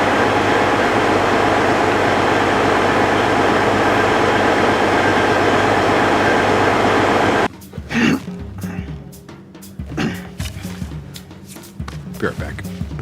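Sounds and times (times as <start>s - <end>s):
tractor engine running: 0.0s - 7.5s.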